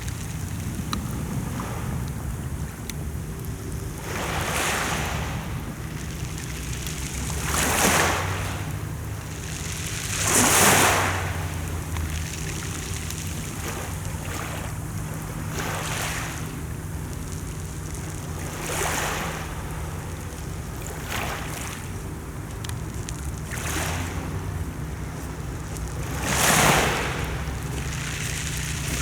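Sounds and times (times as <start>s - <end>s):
surf hissing: 0.0s - 29.0s
steady low hum: 11.1s - 29.0s.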